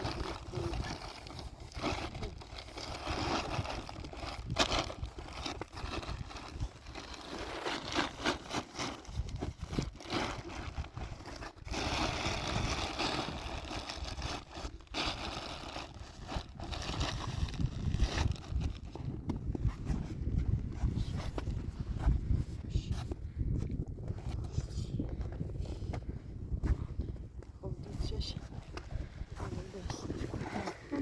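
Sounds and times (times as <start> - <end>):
scraping and crunching: 0.0 - 19.9.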